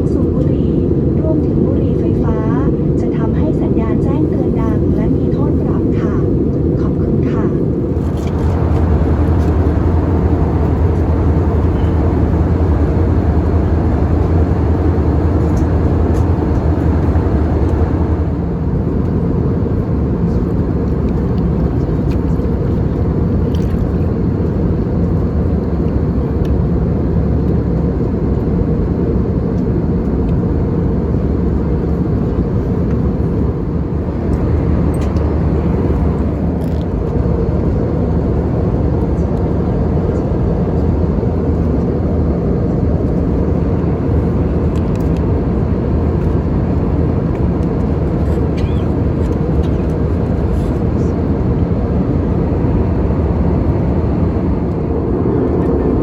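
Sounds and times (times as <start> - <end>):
airplane cabin engine noise: 0.0 - 56.0.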